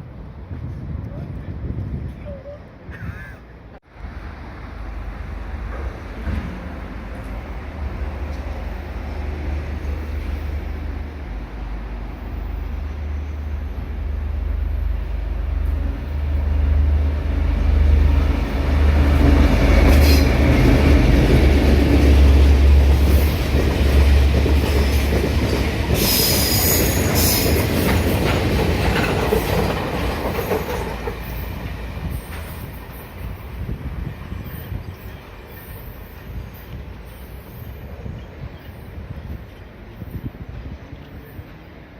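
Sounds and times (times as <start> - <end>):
freight train rumbling: 0.0 - 41.9
train wheel clatter: 19.0 - 33.8.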